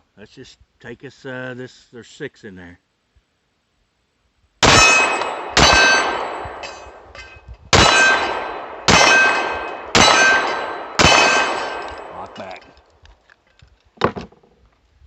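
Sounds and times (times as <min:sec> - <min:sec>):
pistol shots with metallic ringing: 0:04.6 - 0:12.7.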